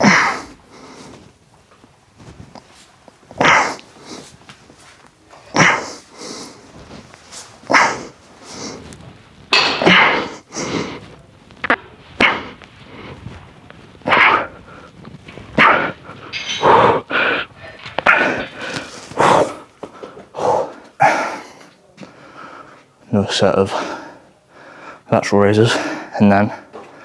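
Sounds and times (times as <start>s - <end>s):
person grunting with effort: 0.0s - 0.6s, 3.4s - 3.8s, 5.5s - 6.0s, 7.7s - 8.2s, 9.6s - 11.0s, 12.2s - 12.6s, 14.0s - 14.6s, 15.6s - 19.7s.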